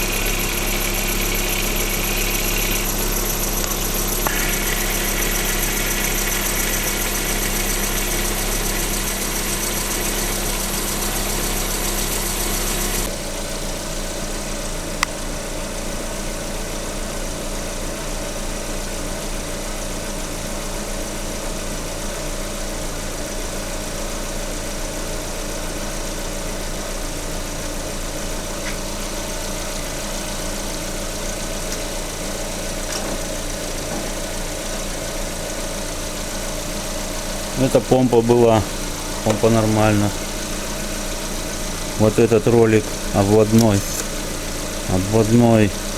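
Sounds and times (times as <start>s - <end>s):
steady hum: 0.0s - 13.1s, 37.5s - 45.9s
engine idling through stethoscope: 0.0s - 45.9s
click: 3.6s - 5.7s, 43.4s - 44.2s.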